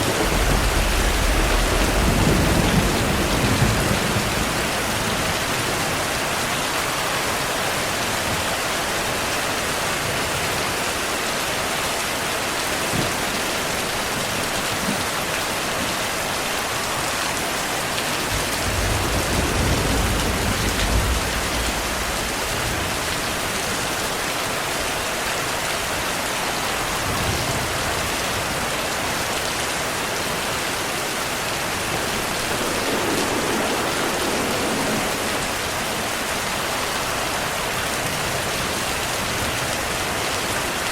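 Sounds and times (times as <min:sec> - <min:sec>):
distant thunder rumble: 0:00.0 - 0:06.3, 0:18.3 - 0:23.6, 0:30.6 - 0:40.0
rain falling hard: 0:00.0 - 0:40.9.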